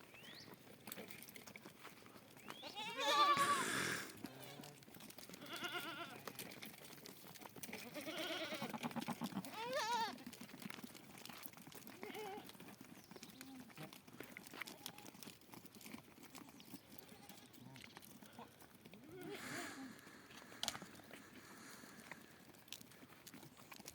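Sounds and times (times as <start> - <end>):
goats and sheep bleating: 2.5 - 6.8, 7.4 - 10.4, 11.2 - 15.3, 16.3 - 23.4.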